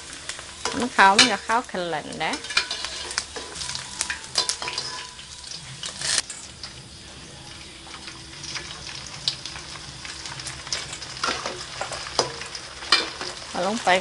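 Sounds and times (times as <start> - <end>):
pork skin sizzling in oil: 0.0 - 14.0
tongs and ladle clicking on pan: 0.6 - 6.3, 10.7 - 13.4.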